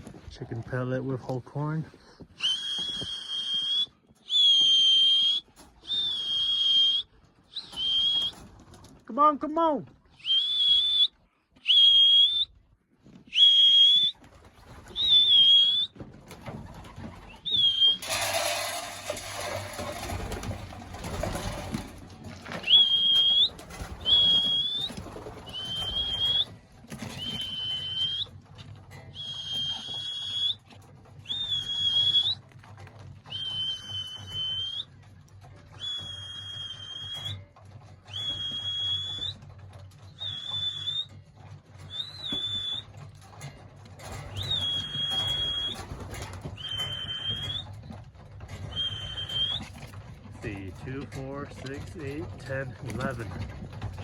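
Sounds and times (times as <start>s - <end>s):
whistle blasts: 2.4s - 8.4s, 10.2s - 12.5s, 13.3s - 14.1s, 15.0s - 15.9s, 22.6s - 25.0s, 27.2s - 28.3s, 29.2s - 30.6s, 33.3s - 34.9s, 35.8s - 37.4s, 38.1s - 39.4s, 40.2s - 41.1s, 41.9s - 42.8s, 44.4s - 45.8s, 46.6s - 47.6s, 48.7s - 49.6s
loud rustling burst: 17.7s - 26.5s.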